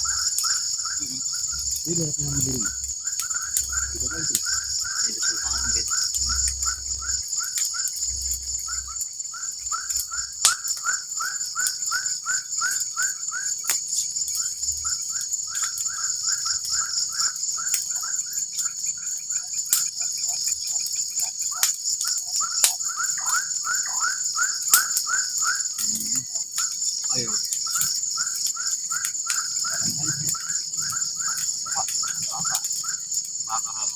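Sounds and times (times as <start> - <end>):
insect chorus: 0.0 - 33.9.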